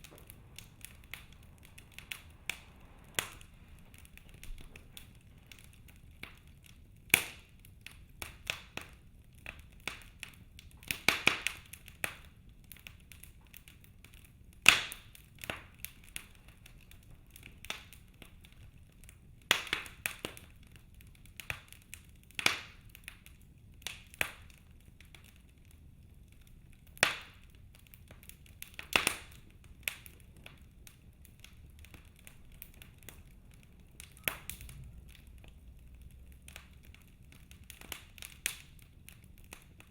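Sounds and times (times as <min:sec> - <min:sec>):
faint low rumble: 0:00.0 - 0:08.3, 0:24.6 - 0:39.9
wood fire crackling and popping: 0:00.0 - 0:39.9.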